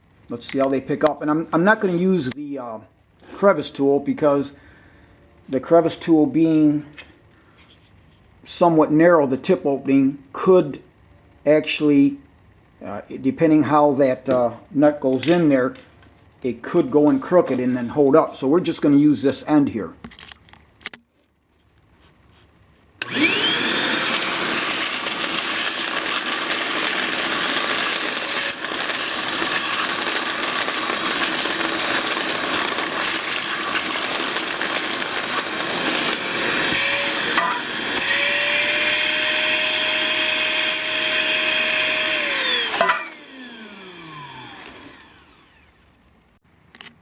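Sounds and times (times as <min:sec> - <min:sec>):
shop vacuum running: 0:00.0 - 0:07.8, 0:12.9 - 0:19.1, 0:22.3 - 0:46.0.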